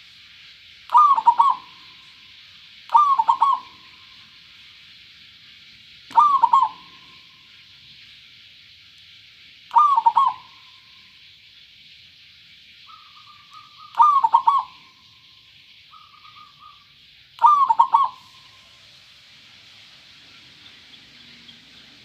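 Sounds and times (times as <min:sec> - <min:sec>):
dove cooing: 0:00.9 - 0:01.9, 0:02.9 - 0:03.8, 0:06.1 - 0:07.2, 0:09.7 - 0:10.6, 0:12.9 - 0:14.9, 0:17.4 - 0:18.5.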